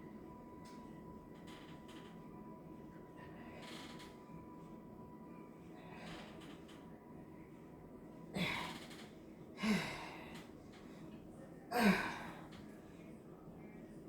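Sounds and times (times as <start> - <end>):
woman exhaling with grunts: 11.7 - 12.4.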